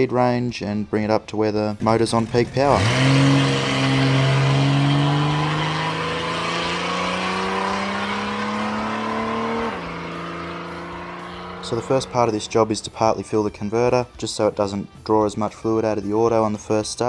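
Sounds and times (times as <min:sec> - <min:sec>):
car engine accelerating: 0:01.8 - 0:13.6.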